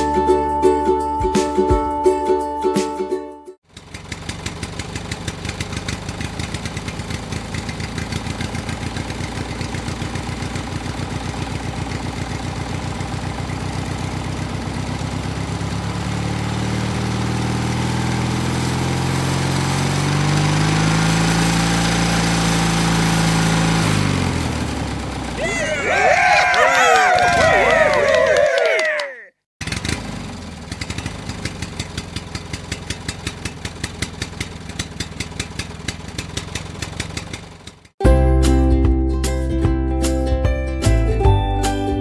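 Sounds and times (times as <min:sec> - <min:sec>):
small engine running: 0:03.6 - 0:25.4, 0:29.6 - 0:38.0.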